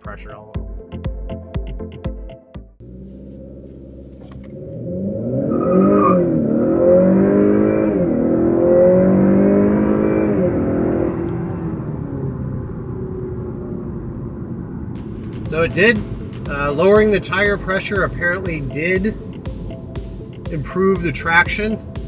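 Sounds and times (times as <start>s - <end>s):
car engine idling: 2.8s - 5.4s, 10.3s - 22.0s
car accelerating hard: 2.8s - 18.9s.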